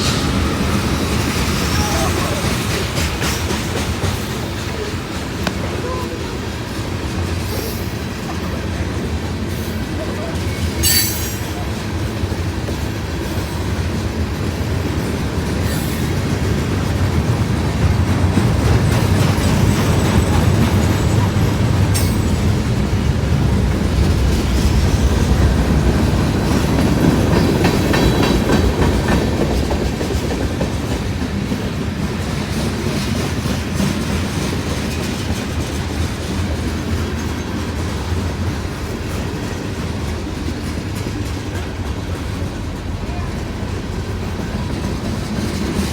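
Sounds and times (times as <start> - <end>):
freight train rumbling past: 0.0 - 45.9.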